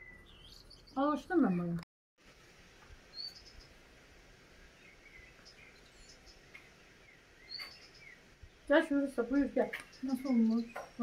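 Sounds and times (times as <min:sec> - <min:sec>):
faint bird chirps: 0:03.1 - 0:03.8, 0:04.8 - 0:11.0.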